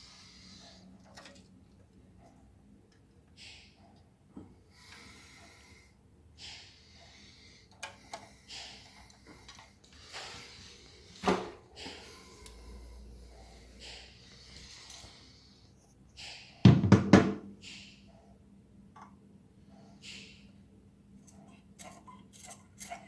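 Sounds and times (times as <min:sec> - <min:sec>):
rustling and hissing handling noises: 0:06.4 - 0:16.6.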